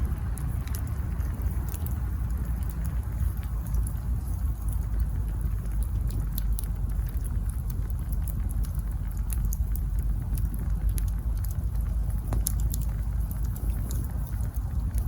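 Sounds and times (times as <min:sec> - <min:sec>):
campfire flames rumbling: 0:00.0 - 0:15.0
fire crackling and popping: 0:00.0 - 0:15.0.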